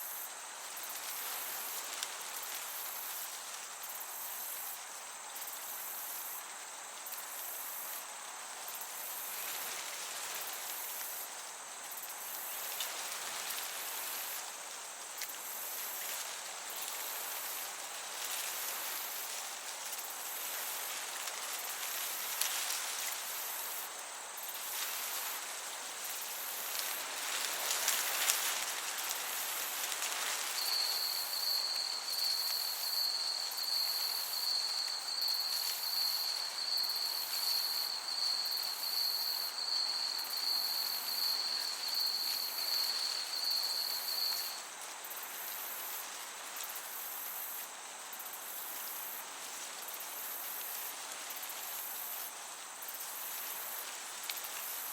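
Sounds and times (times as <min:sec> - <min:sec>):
crickets chirping: 0:00.0 - 0:54.9
soft breeze hiss: 0:00.0 - 0:54.9
insect trilling: 0:24.5 - 0:44.6.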